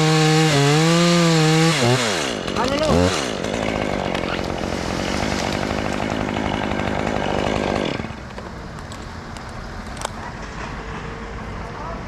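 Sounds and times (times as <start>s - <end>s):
chainsaw cutting wood: 0.0s - 8.4s.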